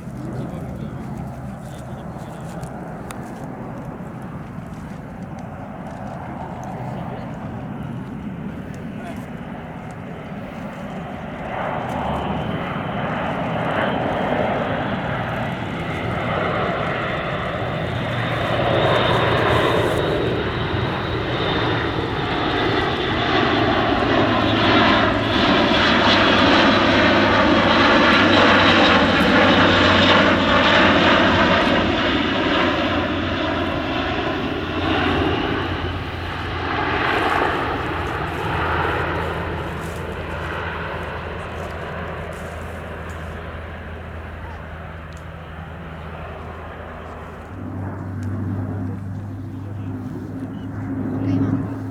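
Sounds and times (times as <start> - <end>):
turboprop aircraft passing: 0.0 - 51.9.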